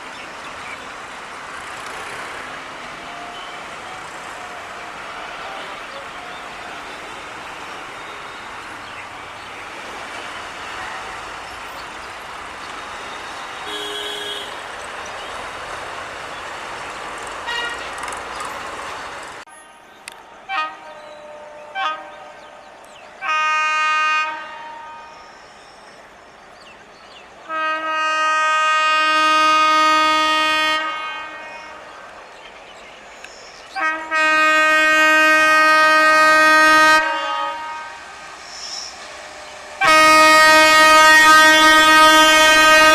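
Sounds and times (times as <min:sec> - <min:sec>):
road traffic noise: 0:00.0 - 0:42.9
locomotive horn blasts: 0:12.8 - 0:14.8, 0:17.4 - 0:18.1, 0:19.6 - 0:22.5, 0:23.2 - 0:25.3, 0:27.5 - 0:32.0, 0:33.8 - 0:38.3, 0:39.8 - 0:42.9.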